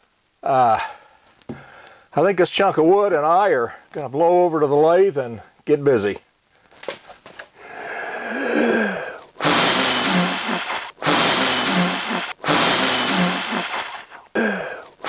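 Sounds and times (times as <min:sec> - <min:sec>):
man blowing forcefully: 0:07.6 - 0:15.0.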